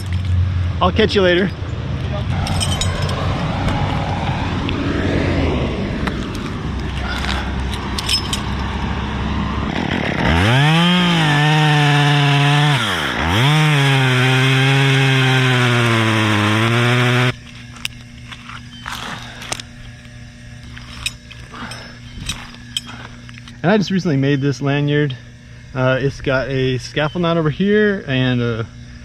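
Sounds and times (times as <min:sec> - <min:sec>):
low rumble: 0:00.0 - 0:10.4
handling noise: 0:02.2 - 0:04.1, 0:06.0 - 0:08.8, 0:17.4 - 0:23.6
chainsaw revving: 0:02.3 - 0:17.4.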